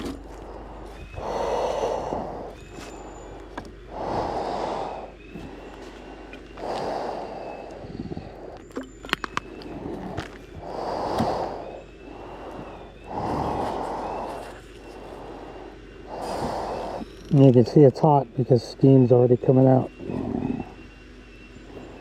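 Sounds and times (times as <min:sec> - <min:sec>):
person breathing: 0:00.0 - 0:08.7, 0:09.6 - 0:17.3
equipment clicks and clinks: 0:08.6 - 0:10.5.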